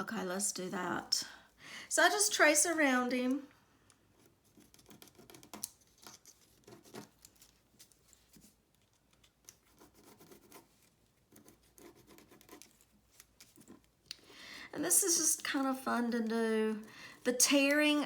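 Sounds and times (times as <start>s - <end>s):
drawing tool scratching paper: 9.6s - 12.9s.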